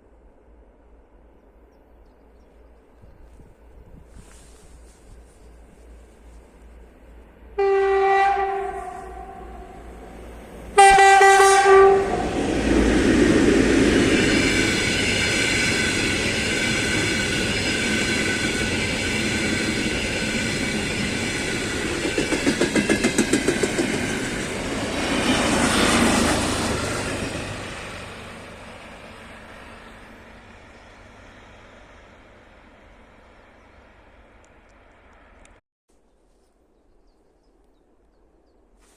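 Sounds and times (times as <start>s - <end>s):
passing train whine and rush: 0.0s - 35.6s
train horn blasts: 7.5s - 12.5s.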